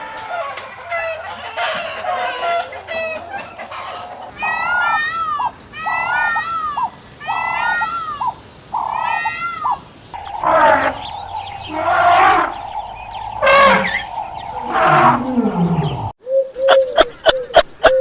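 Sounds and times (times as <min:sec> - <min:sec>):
large animal calling loudly: 0:10.2 - 0:16.1
wavering bleat: 0:10.2 - 0:16.1.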